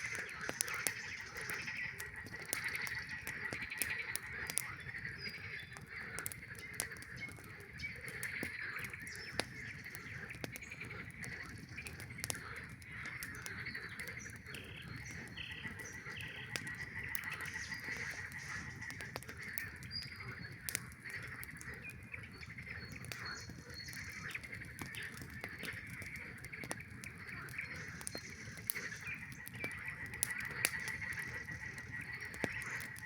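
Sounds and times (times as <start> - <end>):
campfire pops and crackles: 0.0 - 33.0
frogs chorus calling: 0.0 - 33.0.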